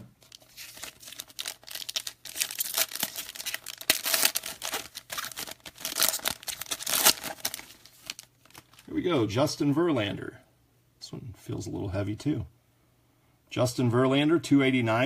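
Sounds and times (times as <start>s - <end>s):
plastic wrapper crinkling and tearing: 0.2s - 8.9s.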